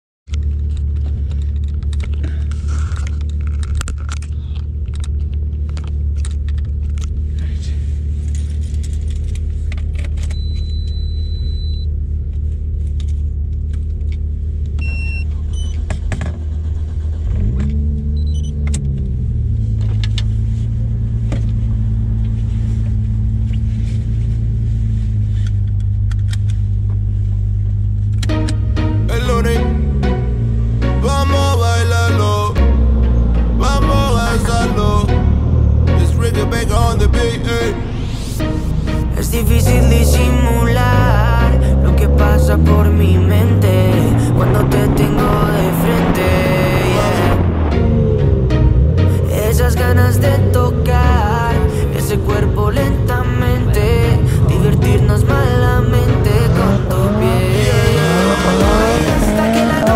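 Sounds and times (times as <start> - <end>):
small clicks and rattles: 0.3 - 7.2
car engine idling: 0.3 - 59.9.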